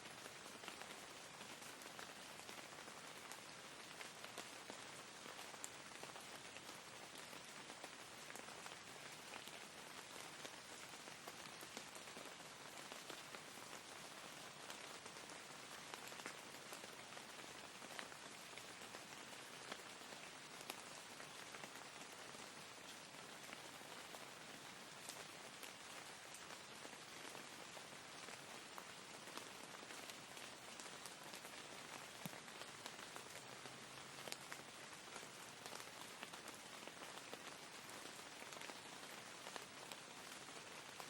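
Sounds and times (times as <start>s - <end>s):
faint steady rain: 0.0s - 41.0s
raindrops ticking: 24.8s - 41.0s.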